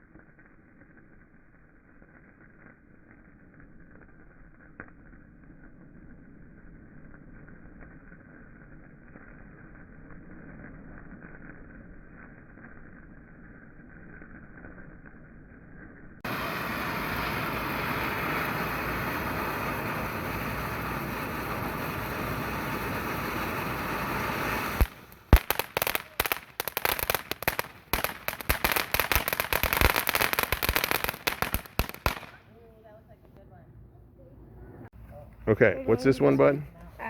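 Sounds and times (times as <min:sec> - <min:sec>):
firework crackling pops and bangs: 0:00.0 - 0:33.4
firework spraying hiss: 0:16.2 - 0:32.8.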